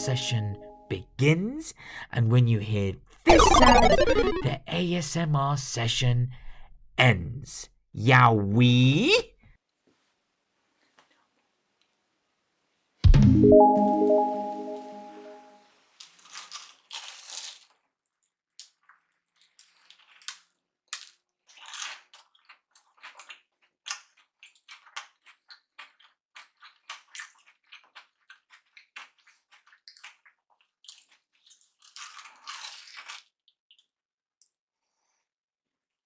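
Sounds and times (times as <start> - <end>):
crunchy food being chewed: 16.0 - 33.9.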